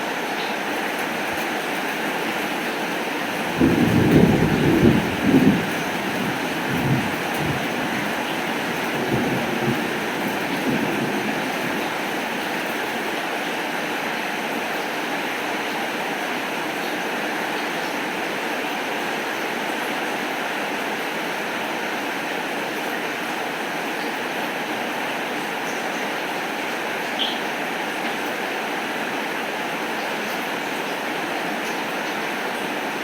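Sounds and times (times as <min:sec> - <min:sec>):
steady rain hiss: 0:00.0 - 0:33.0.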